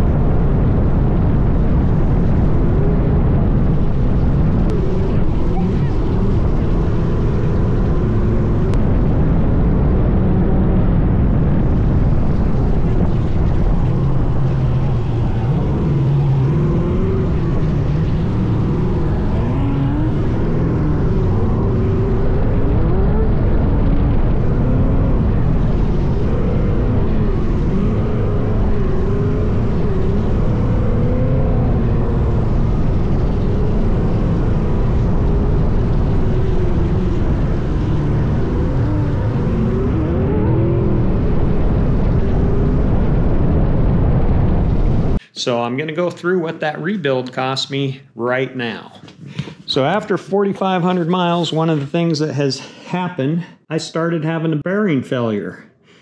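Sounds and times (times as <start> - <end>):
low rumble: 0.0 - 53.0
sand car engine revving: 11.8 - 42.8.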